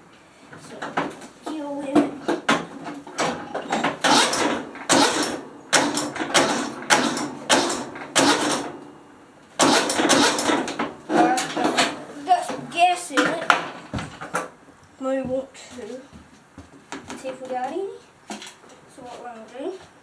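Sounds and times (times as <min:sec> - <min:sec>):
mower engine cranking: 0:00.5 - 0:14.6.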